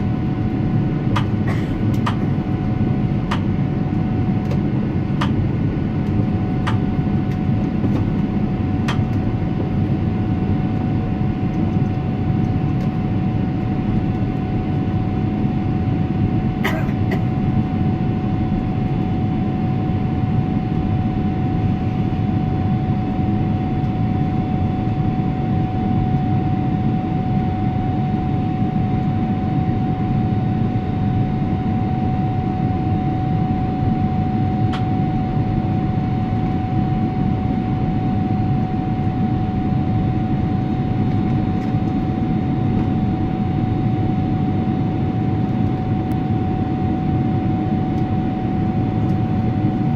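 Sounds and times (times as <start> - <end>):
airliner cabin rumble: 0.0 - 49.9.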